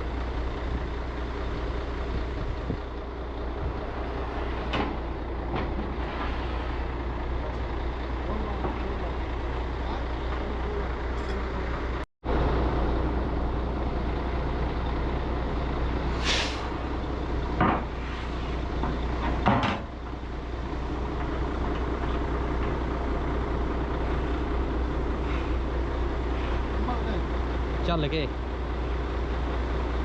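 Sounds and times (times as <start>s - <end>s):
heavy truck engine running: 0.0s - 30.0s
air hissing: 16.1s - 16.7s.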